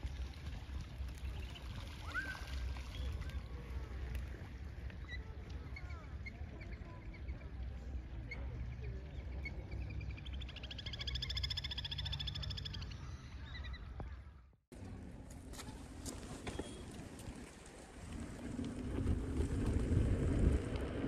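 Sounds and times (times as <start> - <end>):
birds chirping: 8.3 - 14.2
low rumble: 16.9 - 21.0.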